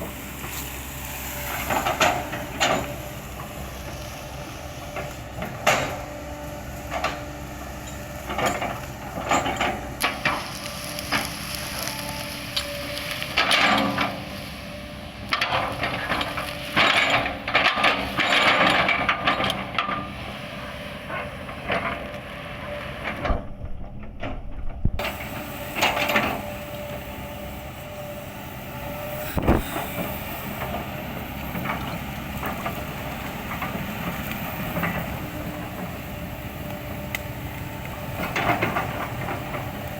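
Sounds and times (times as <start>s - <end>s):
excavator engine running: 0.0s - 39.9s
wood cracking and crunching: 10.1s - 13.4s.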